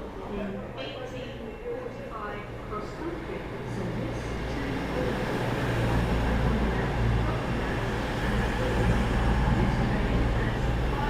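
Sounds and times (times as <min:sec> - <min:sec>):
diesel train engines droning: 0:00.0 - 0:11.0.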